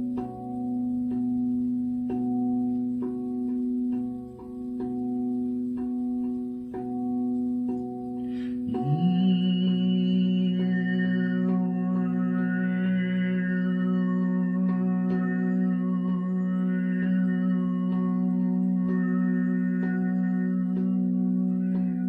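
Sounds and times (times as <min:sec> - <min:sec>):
person humming a low note: 0:00.0 - 0:22.0
struck tuned notes: 0:00.0 - 0:22.0
singing bowl ringing: 0:08.6 - 0:22.0.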